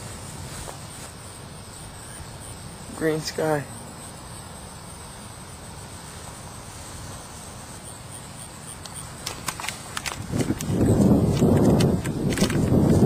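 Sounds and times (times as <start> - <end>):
faint insect drone: 0.0 - 13.0
steady low hiss: 0.0 - 13.0
sharp clicks: 8.8 - 13.0.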